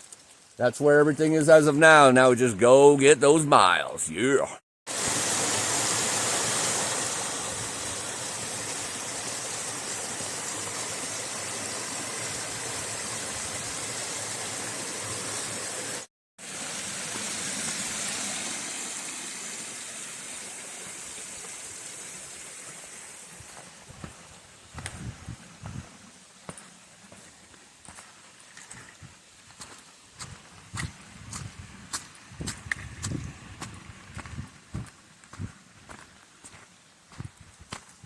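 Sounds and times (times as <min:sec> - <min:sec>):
hiss of running water: 0:04.9 - 0:38.0
footsteps: 0:23.4 - 0:38.0.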